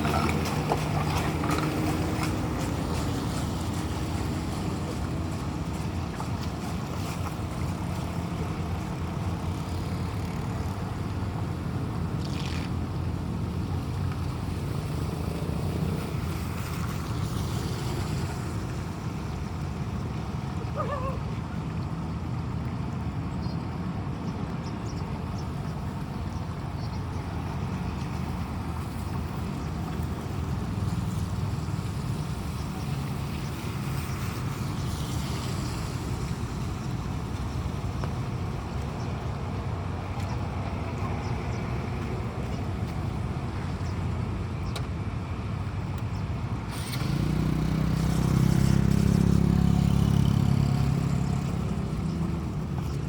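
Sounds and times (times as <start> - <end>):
running floodwater: 0.0 - 53.0
rainstorm: 28.3 - 39.6.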